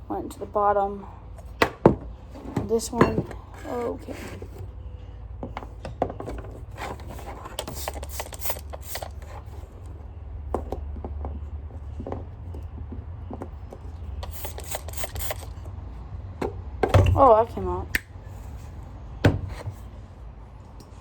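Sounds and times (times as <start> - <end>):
plastic parts clicking and scraping: 5.6 - 10.0, 10.6 - 15.7.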